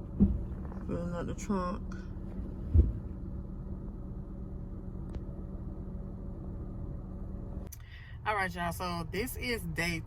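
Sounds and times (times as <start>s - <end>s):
car engine idling: 0.0s - 10.0s
heavy thump: 0.1s - 0.7s, 2.6s - 3.1s.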